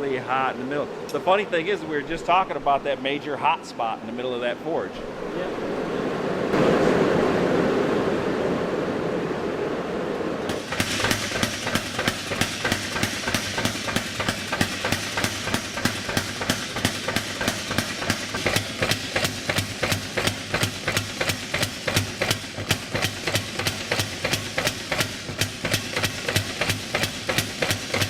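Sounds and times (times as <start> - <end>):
forge burner rushing: 0.0 - 28.0
low motor hum: 0.0 - 28.0
power hammer striking metal: 10.5 - 28.0.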